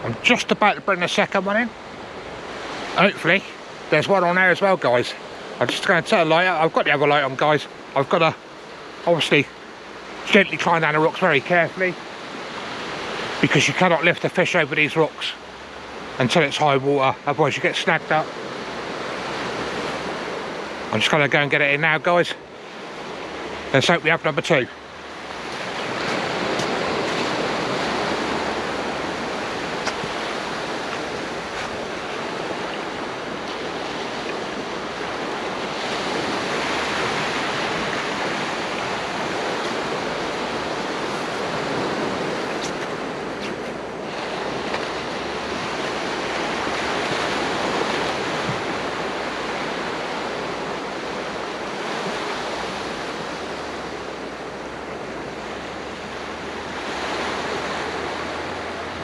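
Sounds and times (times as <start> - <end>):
sea surf washing on shore: 0.0 - 59.0
wind on microphone: 24.8 - 59.0.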